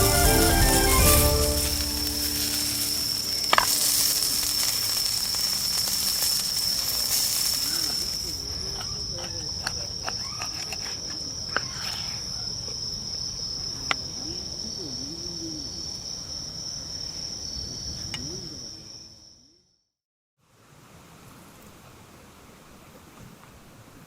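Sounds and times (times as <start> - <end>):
sharp crackles: 0.0 - 10.6
insect high-pitched trill: 0.0 - 19.7.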